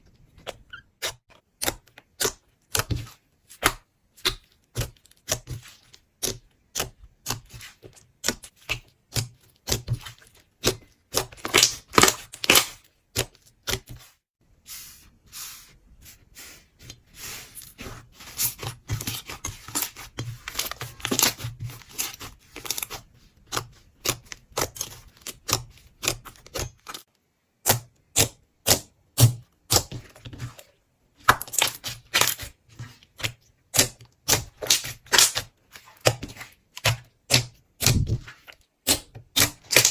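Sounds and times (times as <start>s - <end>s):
slime crackling and popping: 10.7s - 12.8s.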